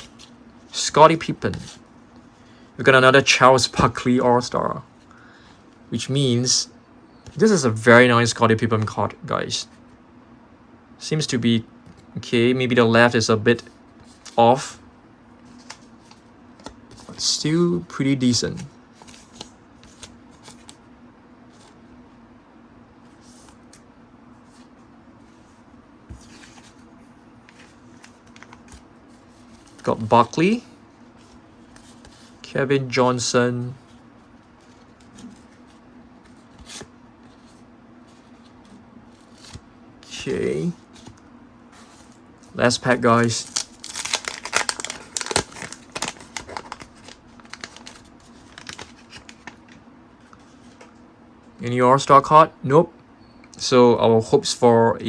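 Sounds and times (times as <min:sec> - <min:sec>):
faint steady hum: 0:00.0 - 0:55.0
trading cards rustling: 0:15.4 - 0:17.5, 0:18.4 - 0:20.8, 0:24.4 - 0:32.4, 0:33.6 - 0:41.2, 0:41.8 - 0:49.8
cards clicking and crackling: 0:15.5 - 0:17.3, 0:42.8 - 0:49.8
wrapper crinkling: 0:42.6 - 0:49.7.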